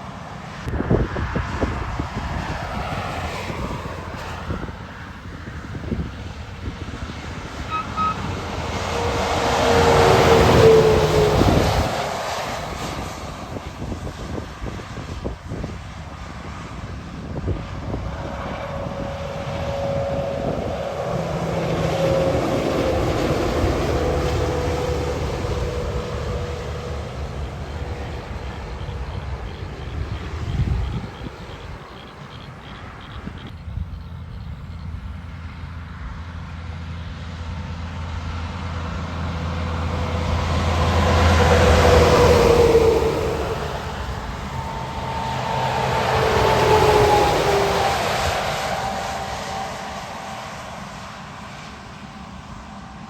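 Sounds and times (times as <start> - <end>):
heavy truck engine and tyres: 0.0 - 53.0
steady whine: 3.9 - 33.4, 37.9 - 53.0.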